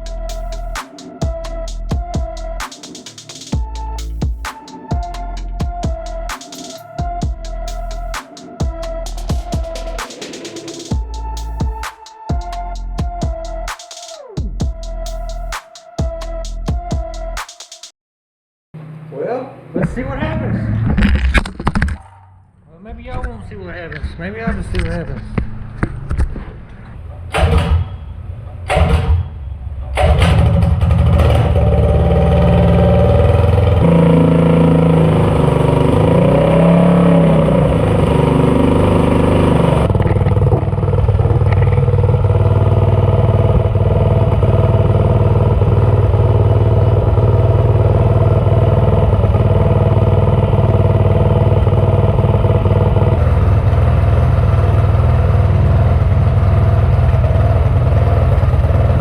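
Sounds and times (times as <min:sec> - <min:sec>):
small engine starting and running: 0:30.2 - 0:58.9.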